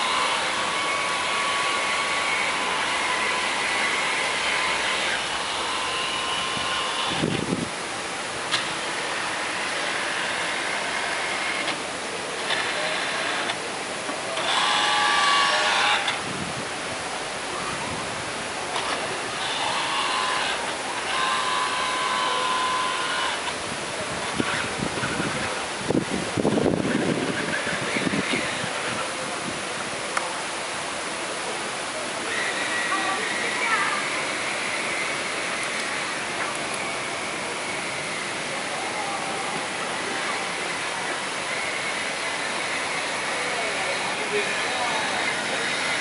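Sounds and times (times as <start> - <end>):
boat engine: 0.0 - 46.0
faint steady whine: 0.0 - 46.0
water rushing: 0.0 - 46.0
wind: 0.0 - 46.0
wind on microphone: 6.4 - 7.8, 16.2 - 18.4, 23.6 - 29.9.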